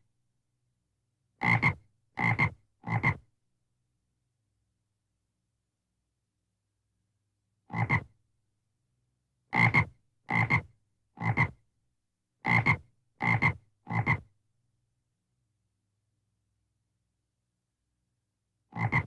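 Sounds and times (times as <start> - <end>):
frog croaking: 18.8 - 19.0.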